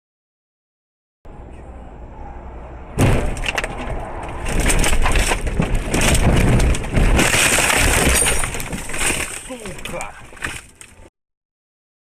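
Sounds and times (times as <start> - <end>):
car crash crunching and scraping: 3.0 - 11.1.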